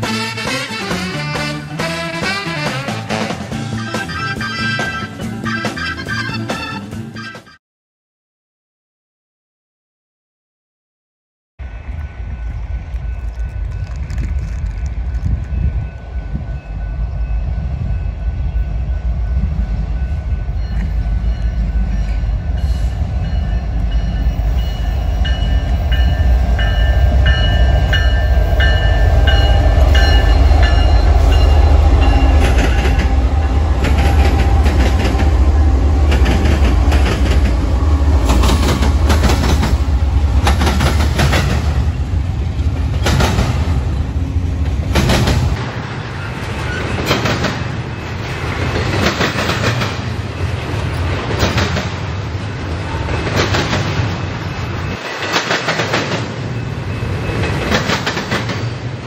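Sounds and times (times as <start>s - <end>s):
diesel locomotives rumbling: 0.0s - 7.5s, 11.6s - 59.0s
wheels clacking over rail joints: 23.2s - 59.0s.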